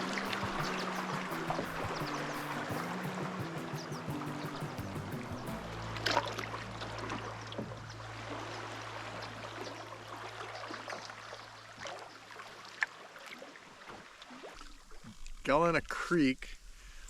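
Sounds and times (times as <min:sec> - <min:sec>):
steady low hum: 0:00.0 - 0:11.8
paddle splashing water: 0:00.0 - 0:15.3.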